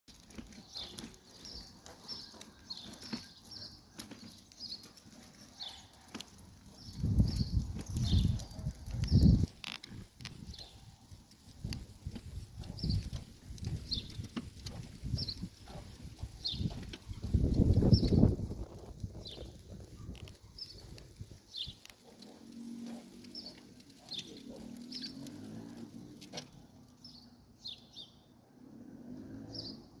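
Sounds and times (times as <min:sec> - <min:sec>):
small bird chirping: 0:11.6 - 0:25.9.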